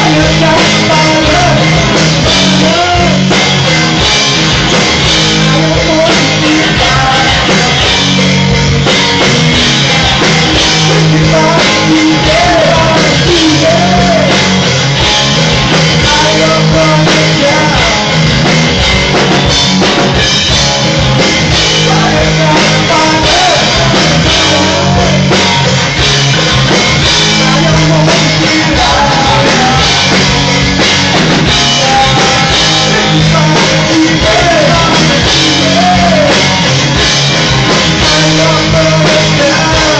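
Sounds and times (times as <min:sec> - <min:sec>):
person singing: 0:00.0 - 0:04.2, 0:05.1 - 0:08.6, 0:09.2 - 0:15.0, 0:15.8 - 0:18.7, 0:20.6 - 0:25.8, 0:27.0 - 0:36.9, 0:37.8 - 0:39.9
drum kit: 0:00.0 - 0:39.9
electric guitar: 0:00.0 - 0:39.9.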